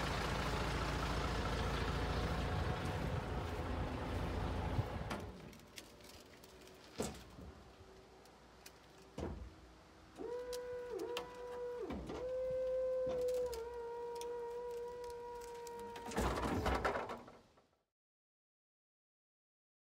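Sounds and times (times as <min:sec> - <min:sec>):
hydraulic pump motor whine: 0:10.2 - 0:16.3.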